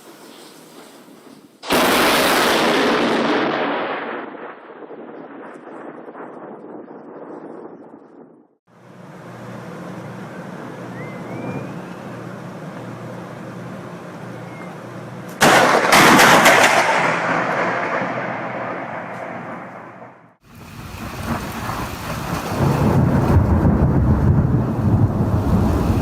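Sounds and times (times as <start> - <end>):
thunder crack and roll: 1.6 - 8.6, 15.4 - 26.0.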